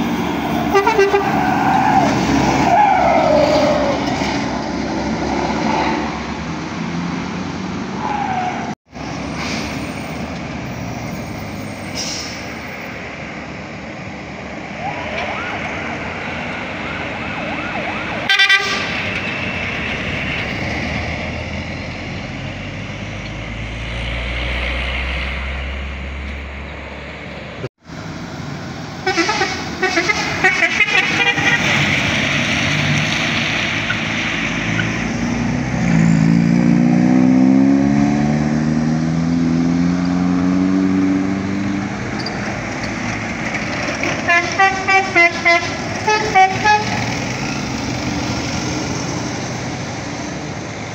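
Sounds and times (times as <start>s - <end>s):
vehicle horns honking: 0.5s - 1.7s, 18.3s - 19.2s, 29.0s - 31.9s, 44.2s - 47.1s
heavy vehicle engine accelerating: 8.6s - 50.9s.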